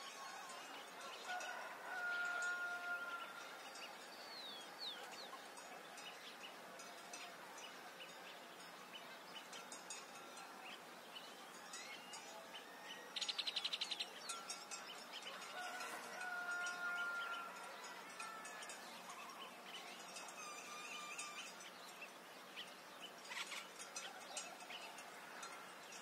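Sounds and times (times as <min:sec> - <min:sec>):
birds chirping: 0:00.0 - 0:26.0
steady background hiss: 0:17.5 - 0:26.0.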